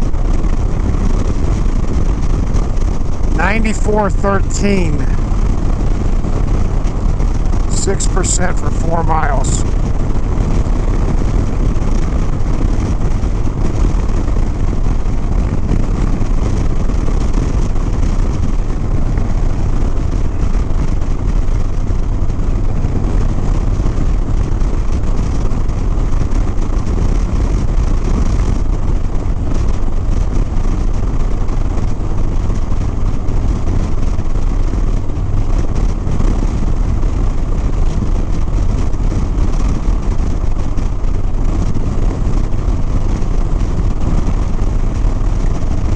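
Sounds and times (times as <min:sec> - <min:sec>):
wind rushing over microphone: 0:00.0 - 0:04.1, 0:05.0 - 0:45.9.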